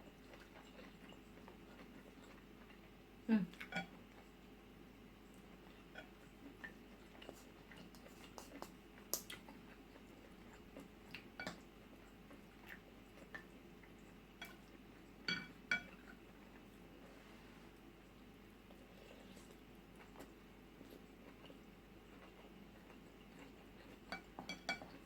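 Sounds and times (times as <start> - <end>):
spoon clinking against bowl: 15.3 - 15.9, 24.1 - 24.9.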